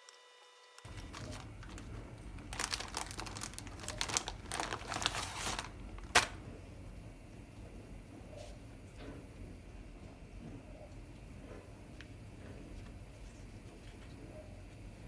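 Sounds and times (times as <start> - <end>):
plastic wrapping crinkling: 0.9 - 6.5.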